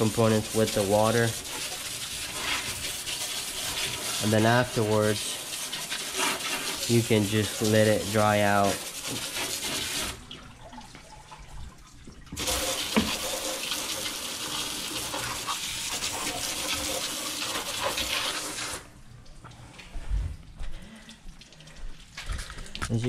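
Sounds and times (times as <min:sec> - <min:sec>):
garden hose spraying water: 0:00.0 - 0:10.2, 0:12.4 - 0:18.9.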